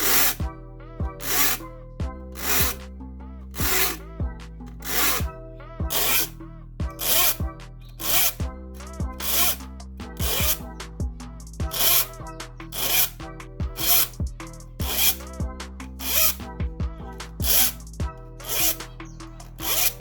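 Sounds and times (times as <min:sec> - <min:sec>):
file rasping on saw teeth: 0:00.0 - 0:00.4, 0:01.2 - 0:01.6, 0:02.4 - 0:02.8, 0:03.6 - 0:04.0, 0:04.8 - 0:05.3, 0:05.9 - 0:06.3, 0:07.0 - 0:07.4, 0:08.0 - 0:10.6, 0:11.6 - 0:13.2, 0:13.8 - 0:16.4, 0:17.2 - 0:20.0.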